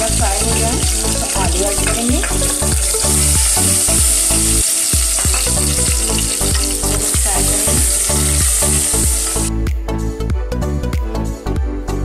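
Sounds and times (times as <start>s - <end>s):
potatoes sizzling in hot oil: 0.0s - 9.5s
background music with steady beat: 0.0s - 12.0s.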